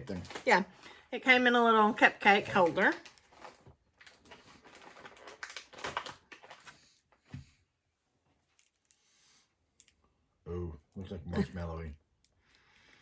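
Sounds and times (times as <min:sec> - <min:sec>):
snack packaging rustling: 0:00.0 - 0:01.1, 0:02.3 - 0:07.3.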